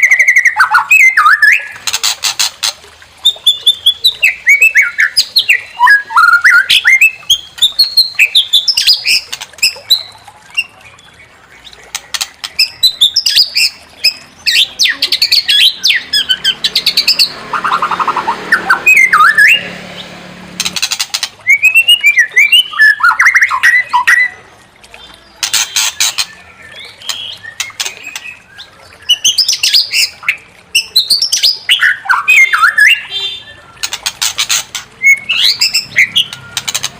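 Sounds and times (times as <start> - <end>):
bird whistled song: 0.0 - 1.8, 3.2 - 10.9, 12.2 - 19.7, 21.4 - 24.4, 25.5 - 34.0, 35.0 - 36.9
bird buzzy rattling: 19.6 - 21.4.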